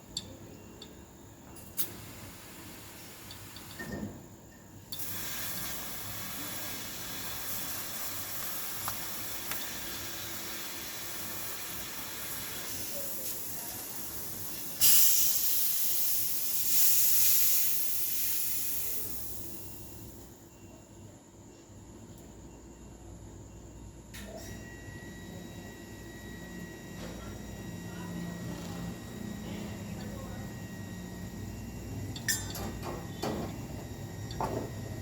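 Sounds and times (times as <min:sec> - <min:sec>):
pressurised gas hissing: 0:04.9 - 0:13.4, 0:14.0 - 0:19.9.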